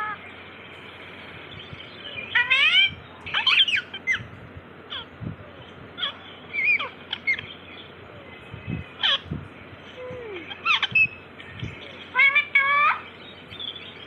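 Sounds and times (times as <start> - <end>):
parrot squawking and whistling: 2.3 - 4.3, 6.0 - 7.5, 9.0 - 9.3, 10.4 - 11.2, 12.0 - 13.1.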